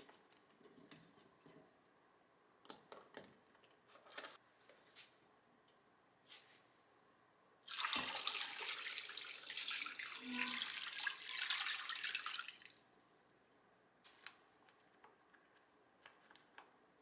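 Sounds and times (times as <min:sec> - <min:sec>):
kitchen tap running into sink: 0:07.7 - 0:12.8.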